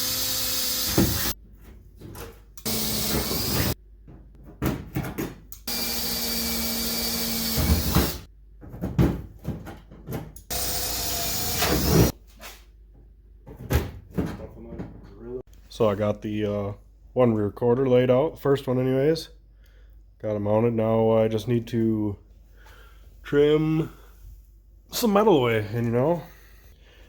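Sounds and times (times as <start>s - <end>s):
power tool hissing whine: 0.0s - 1.4s.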